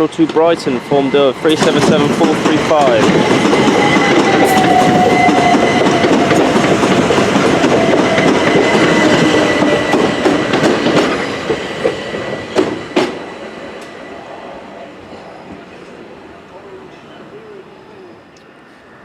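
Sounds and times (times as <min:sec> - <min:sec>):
train wheels rumbling: 0:00.0 - 0:15.9
train motor whine: 0:00.5 - 0:14.4.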